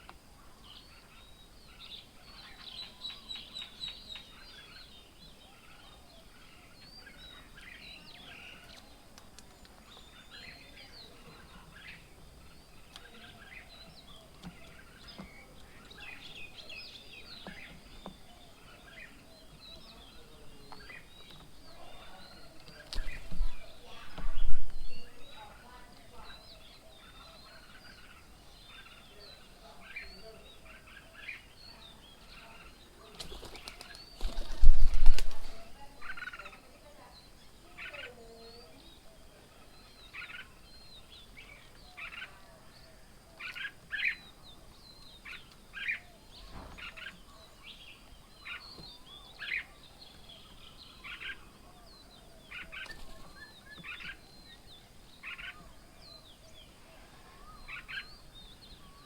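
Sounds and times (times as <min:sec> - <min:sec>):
birds chirping: 0:00.0 - 0:59.0
wings flapping: 0:22.7 - 0:25.2, 0:33.1 - 0:36.2, 0:52.7 - 0:53.4.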